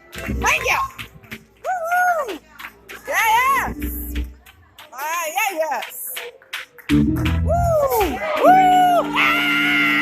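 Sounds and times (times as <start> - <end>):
gospel music: 6.8 - 10.0.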